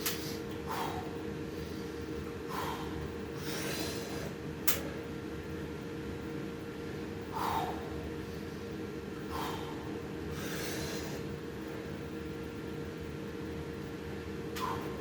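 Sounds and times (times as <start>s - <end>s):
low electrical hum: 0.0s - 15.0s
man breathing hard: 0.1s - 4.4s, 7.3s - 11.4s, 14.6s - 15.0s.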